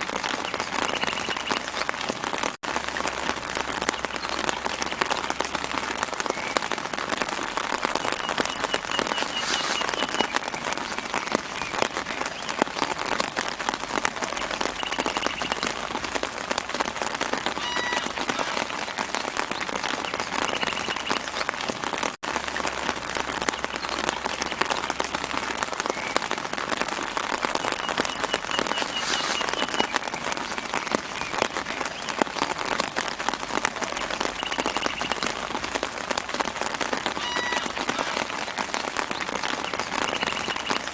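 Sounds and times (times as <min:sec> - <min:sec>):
gentle rain on leaves: 0:00.0 - 0:40.9.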